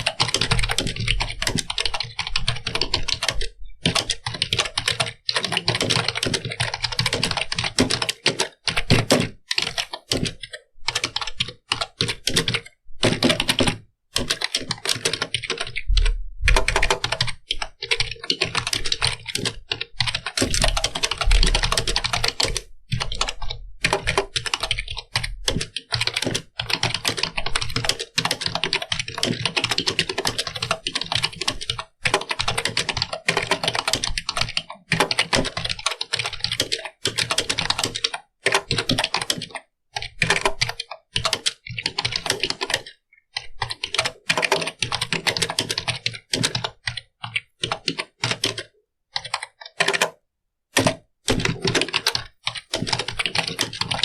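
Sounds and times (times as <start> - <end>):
keyboard typing: 0.0 - 54.0.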